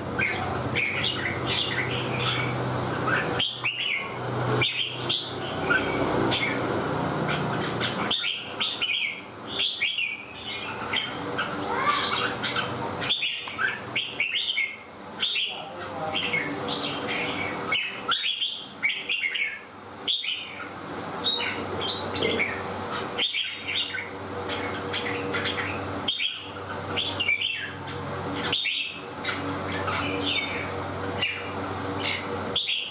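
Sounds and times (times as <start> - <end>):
bird whistling phrases: 10.9 - 22.5.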